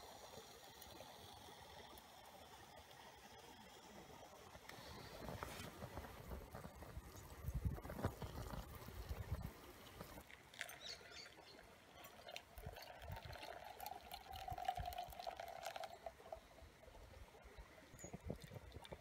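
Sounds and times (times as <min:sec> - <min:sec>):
liquid pouring into container: 0:07.8 - 0:16.7, 0:17.9 - 0:19.0.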